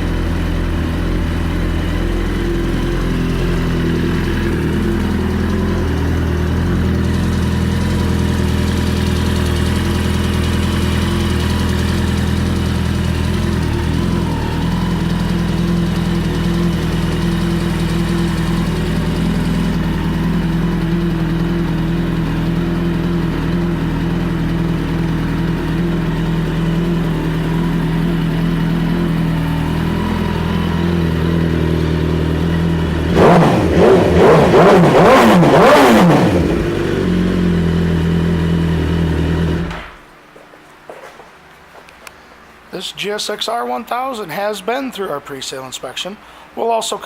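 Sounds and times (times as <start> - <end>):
motorcycle engine idling and revving: 0.0 - 40.2.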